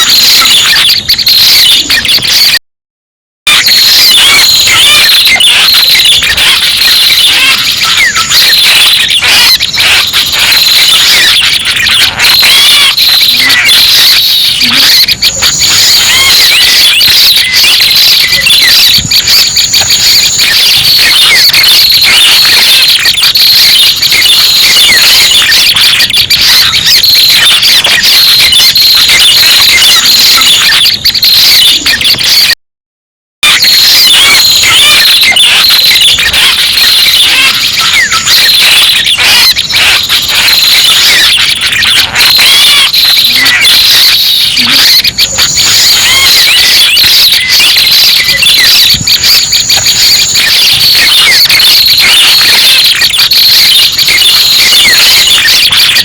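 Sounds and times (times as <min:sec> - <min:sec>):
bird chirps and twitters: 0:03.9 - 0:32.5, 0:34.2 - 0:48.6.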